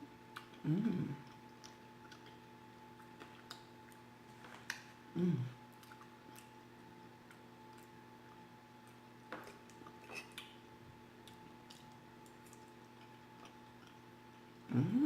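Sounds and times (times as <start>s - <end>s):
steady low hum: 0.0s - 15.0s
chewing and utensil clicks: 1.2s - 2.4s.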